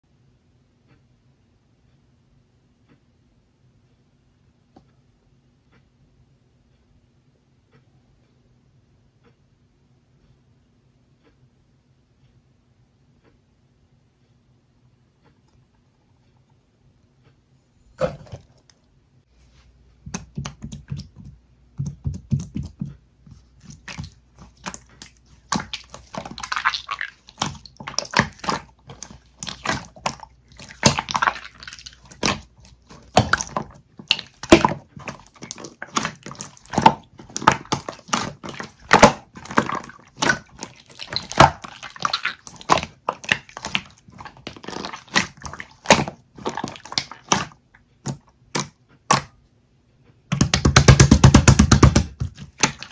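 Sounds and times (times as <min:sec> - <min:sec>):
slime squeezed by hand: 0:22.4 - 0:49.3.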